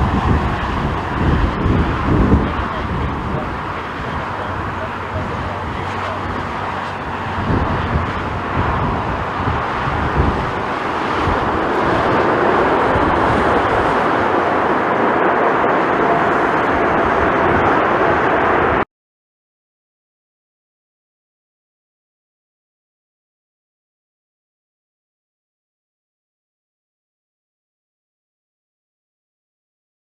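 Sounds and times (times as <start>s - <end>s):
wind buffeting microphone: 0.0s - 18.8s
jet airliner engines: 0.0s - 18.9s.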